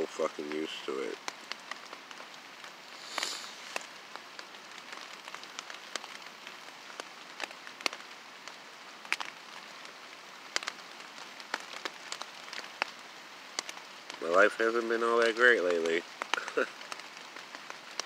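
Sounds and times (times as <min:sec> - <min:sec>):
rain pattering: 0:00.0 - 0:18.0
raindrops tapping close by: 0:00.0 - 0:18.0
brief hiss: 0:02.9 - 0:03.9.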